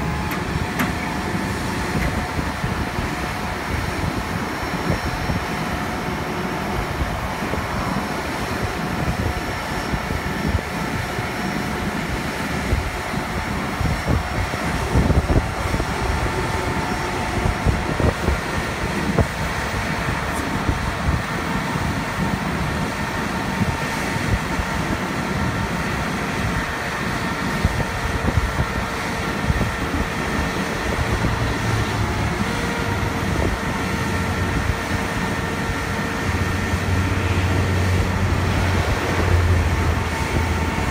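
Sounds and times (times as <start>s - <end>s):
low hum: 0.0s - 22.8s
whining tones: 0.0s - 24.8s
diesel engine running: 0.0s - 40.9s.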